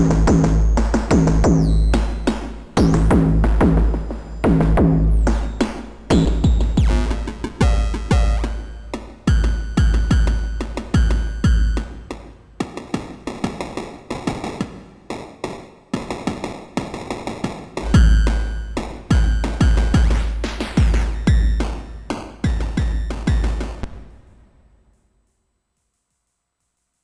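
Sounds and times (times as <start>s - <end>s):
electronic drum pattern: 0.0s - 13.8s, 17.8s - 23.8s.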